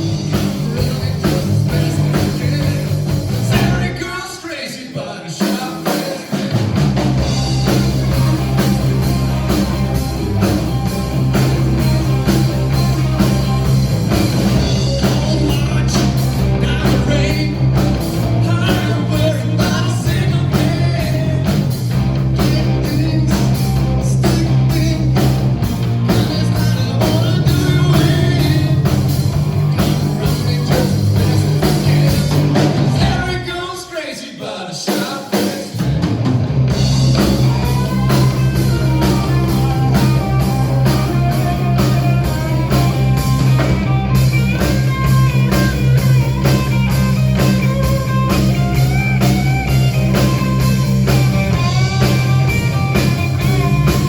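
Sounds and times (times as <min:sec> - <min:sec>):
blues-rock band playing: 0:00.0 - 0:33.9, 0:34.9 - 0:54.0
person singing: 0:14.8 - 0:21.7, 0:22.4 - 0:25.4, 0:26.0 - 0:29.1, 0:29.7 - 0:35.8.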